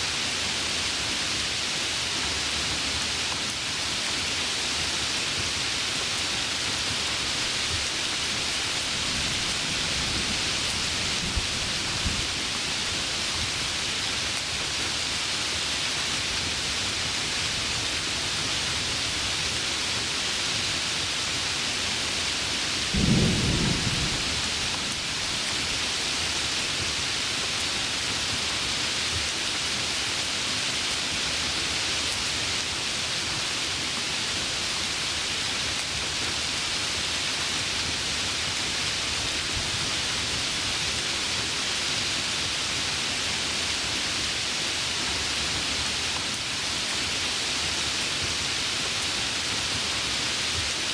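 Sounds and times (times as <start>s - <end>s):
heavy rain falling: 0.0s - 50.9s
low rumble of thunder: 8.9s - 12.5s, 22.9s - 25.4s.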